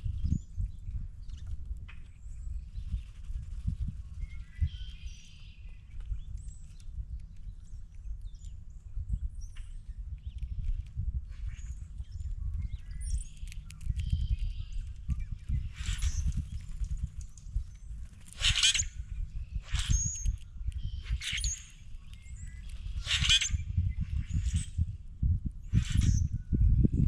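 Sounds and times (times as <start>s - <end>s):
faint bird chirps: 0.0s - 24.9s
harsh bird calls: 18.3s - 20.2s.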